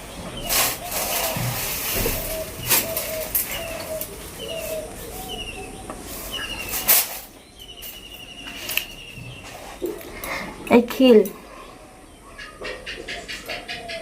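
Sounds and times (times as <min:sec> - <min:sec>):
bird calling falling notes: 0:00.0 - 0:09.9.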